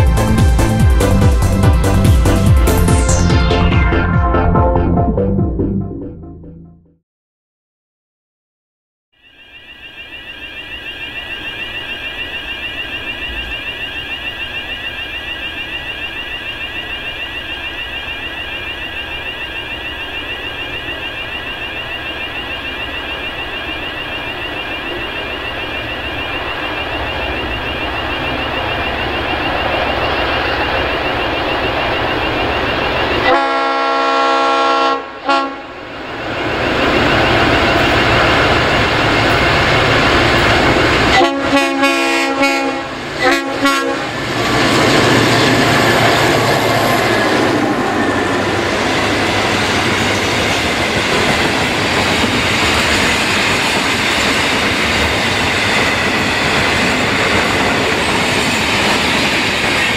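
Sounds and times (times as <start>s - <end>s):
diesel freight train approaching: 0.0s - 6.6s, 9.3s - 59.9s
electronic warning bells ringing: 9.3s - 33.8s, 35.8s - 41.1s
locomotive horn: 33.2s - 35.8s, 41.1s - 44.2s.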